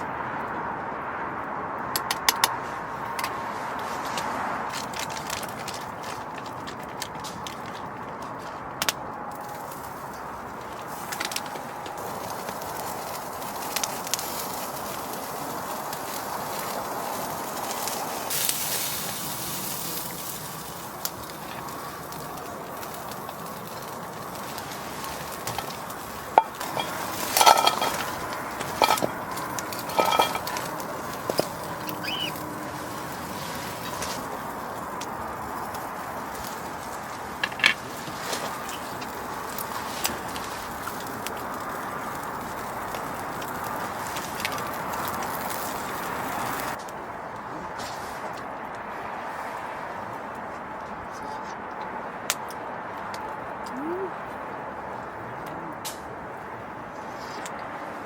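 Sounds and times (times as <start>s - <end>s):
campfire hiss: 2.5s - 51.0s
cookware and utensils clinking: 25.4s - 32.3s.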